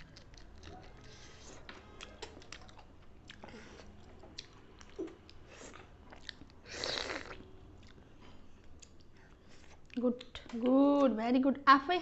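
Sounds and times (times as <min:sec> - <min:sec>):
close chewing and mouth smacks: 0:00.0 - 0:10.7.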